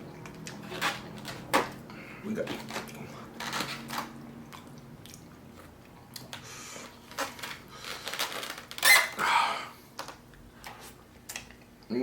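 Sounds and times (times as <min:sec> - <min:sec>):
person chewing food: 0:02.5 - 0:08.3
wet mouth sounds: 0:04.3 - 0:07.0.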